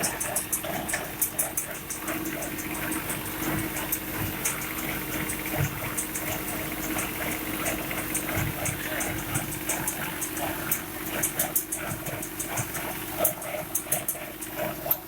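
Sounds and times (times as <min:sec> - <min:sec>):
fast uneven clicking clatter: 0:00.0 - 0:15.0
tractor engine running: 0:00.0 - 0:15.0.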